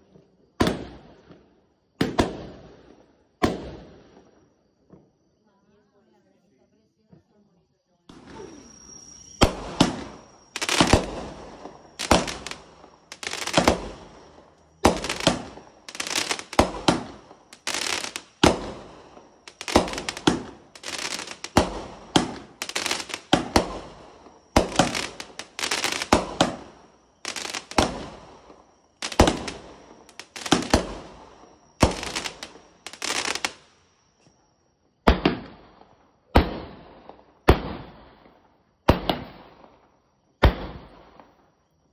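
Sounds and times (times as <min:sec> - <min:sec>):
fireworks bangs: 0:09.4 - 0:33.8.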